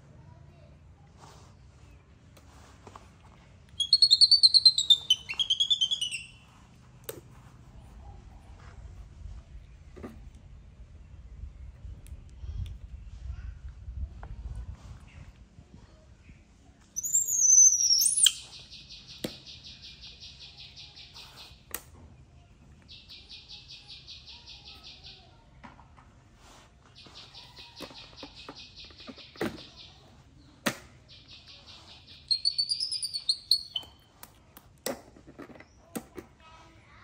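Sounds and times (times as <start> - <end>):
sliding whistle: 3.8 - 6.4
high bird-like chirping: 3.8 - 6.5, 17.0 - 21.6, 31.1 - 34.1.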